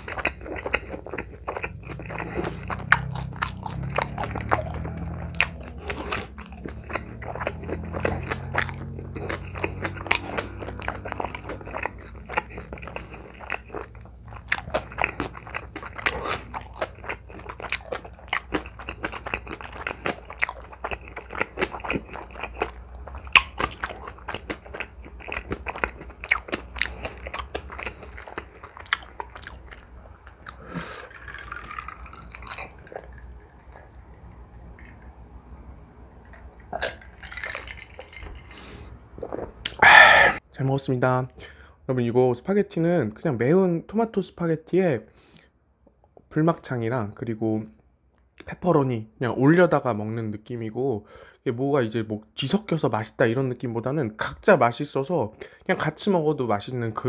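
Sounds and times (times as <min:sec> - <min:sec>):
wet chewing with mouth clicks: 0:00.0 - 0:35.5, 0:36.2 - 0:40.4
person drinking and swallowing: 0:30.3 - 0:35.2, 0:36.2 - 0:40.4.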